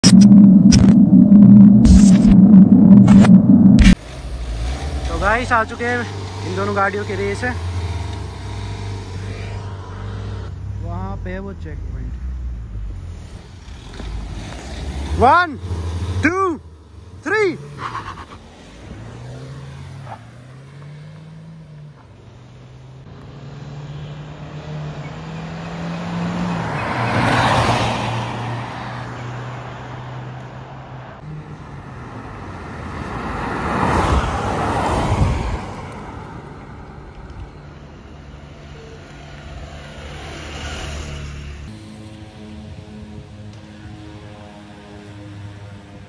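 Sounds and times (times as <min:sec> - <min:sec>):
engines revving through gears: 0:00.0 - 0:11.2, 0:11.8 - 0:29.0
vehicles passing by: 0:00.0 - 0:46.0.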